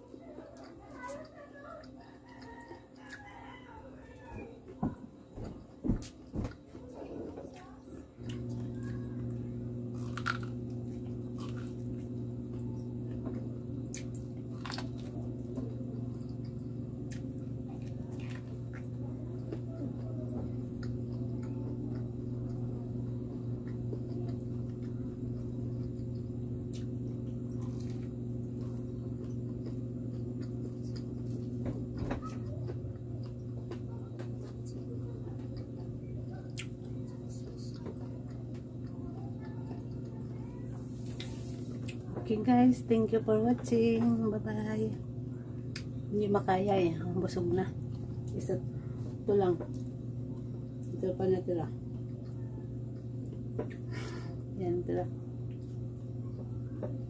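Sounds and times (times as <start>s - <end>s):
steady low hum: 0.0s - 57.0s
corn crunching while chewed: 6.8s - 42.1s.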